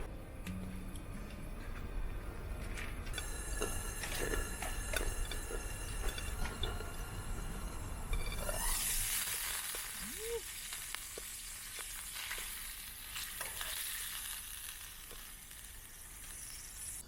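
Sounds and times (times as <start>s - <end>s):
patties sizzling in a pan: 8.4s - 17.0s.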